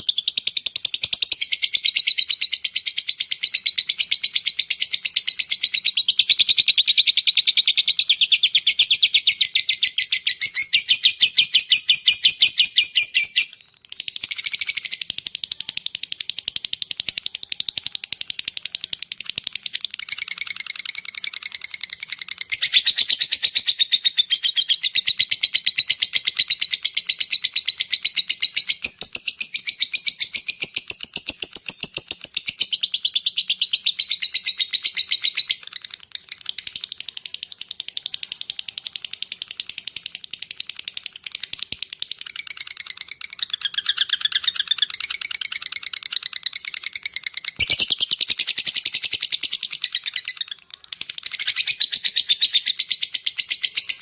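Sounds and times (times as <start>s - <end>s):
lovebird chattering trill: 0.0s - 54.0s.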